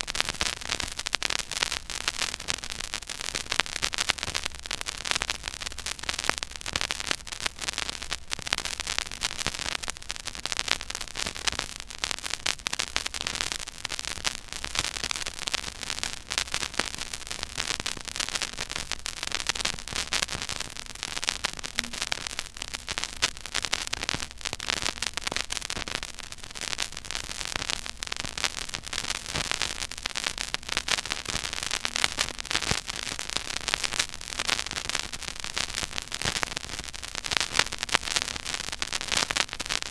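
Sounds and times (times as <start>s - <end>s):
vinyl crackle and pops: 0.0s - 39.9s
steady hiss: 18.6s - 26.5s.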